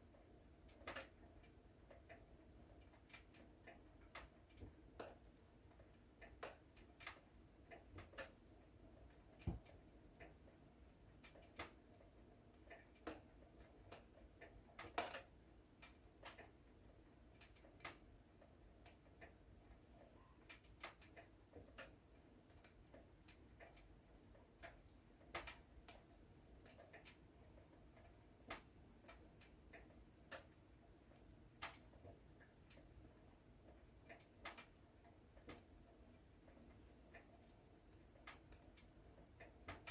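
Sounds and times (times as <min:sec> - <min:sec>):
wood fire crackling: 0:27.9 - 0:39.9.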